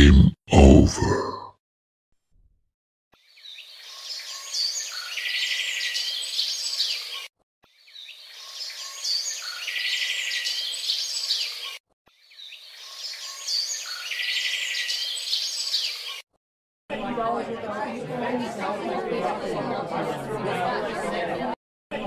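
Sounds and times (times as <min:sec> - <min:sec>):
birds chirping: 0:03.2 - 0:16.2.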